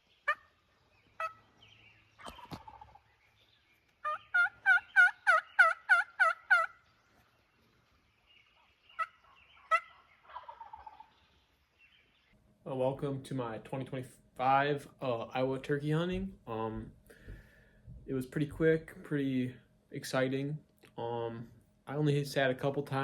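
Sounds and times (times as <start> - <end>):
turkey yelping: 0.0 - 7.3, 8.4 - 11.4.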